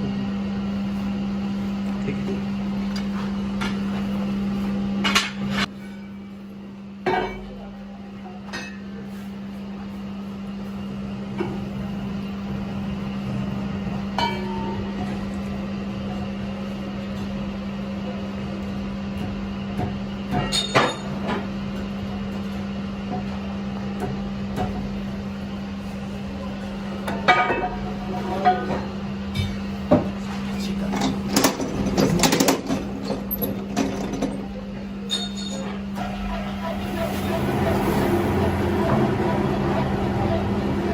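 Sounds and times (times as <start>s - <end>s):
steady machine hum: 0.0s - 40.9s
metallic clanks and knocks: 28.4s - 34.5s.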